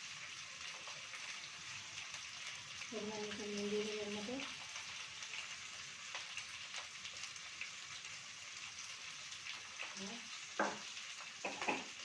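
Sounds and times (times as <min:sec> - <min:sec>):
onion and chicken sizzling in oil: 0:00.0 - 0:12.0.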